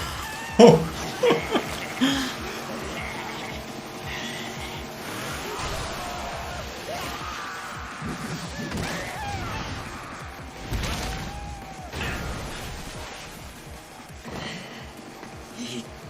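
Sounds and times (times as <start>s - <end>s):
people shouting: 0.0s - 12.5s
action soundtrack music: 0.0s - 16.0s.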